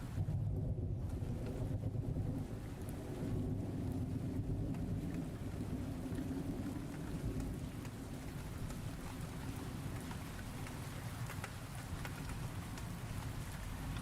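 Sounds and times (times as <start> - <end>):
low rumble of thunder: 0.0 - 14.0
steady rain falling: 0.0 - 14.0
single raindrops ticking: 1.1 - 1.8, 3.9 - 14.0.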